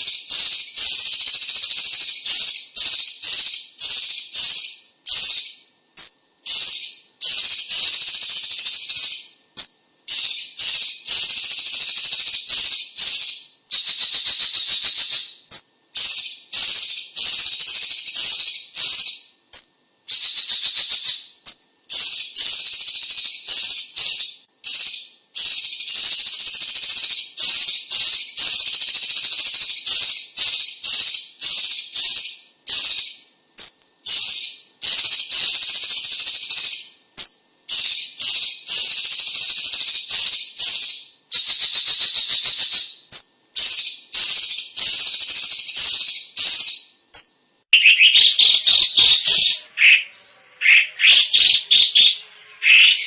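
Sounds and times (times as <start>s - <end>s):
bird chirping: 0.0s - 53.0s
bird harsh hissing rattle calls: 47.8s - 53.0s.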